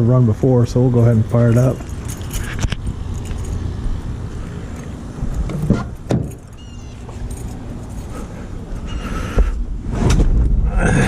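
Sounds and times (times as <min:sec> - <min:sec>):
low steady rumble: 0:00.0 - 0:11.0
keys jangling: 0:01.0 - 0:04.1, 0:06.0 - 0:08.3.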